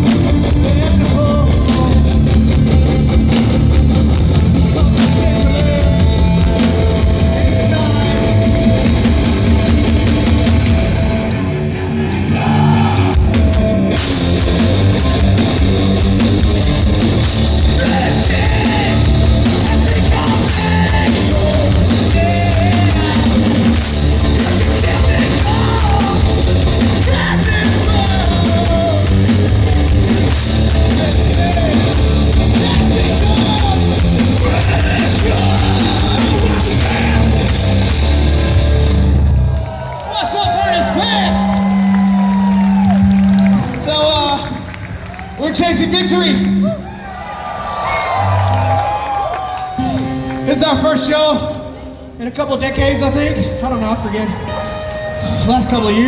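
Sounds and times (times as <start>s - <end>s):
live rock band playing: 0.0s - 11.7s, 13.1s - 39.6s, 52.8s - 56.0s
distorted guitars: 0.0s - 39.7s
drums: 0.0s - 47.0s
person yelling and singing: 17.7s - 30.0s, 30.7s - 37.7s.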